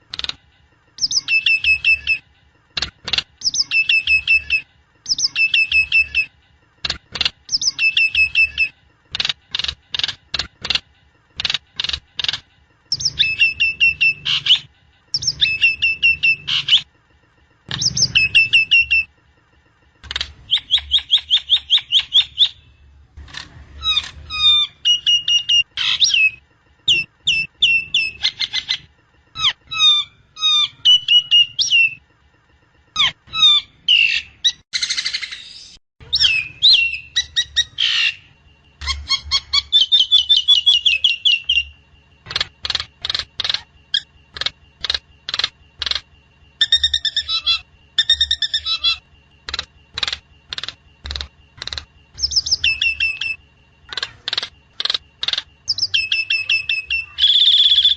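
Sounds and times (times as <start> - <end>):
bird chirps and trills: 0.0 - 57.9
bird squawk: 33.0 - 46.0, 46.6 - 57.9.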